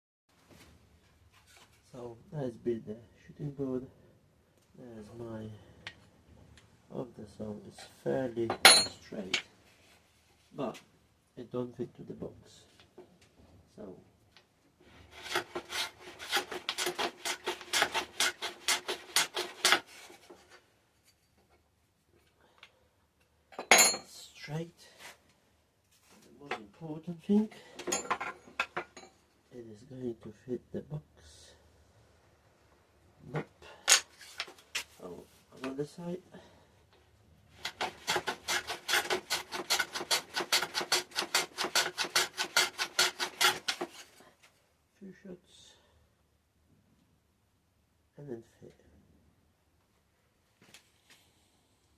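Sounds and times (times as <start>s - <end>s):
wood scraping strokes: 14.8s - 20.6s, 37.5s - 44.5s
tool rasping on wood: 14.9s - 20.3s, 37.6s - 44.2s.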